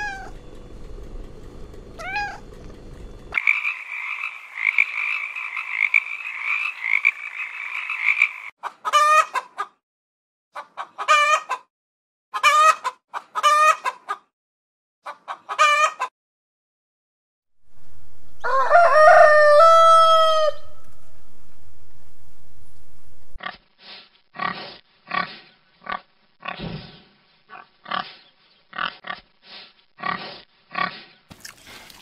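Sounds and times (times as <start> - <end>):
hen clucking: 3.3 - 9.8, 10.6 - 11.7, 12.4 - 14.3, 15.0 - 16.1
toad trilling: 3.4 - 8.5
rooster crowing: 18.3 - 21.0.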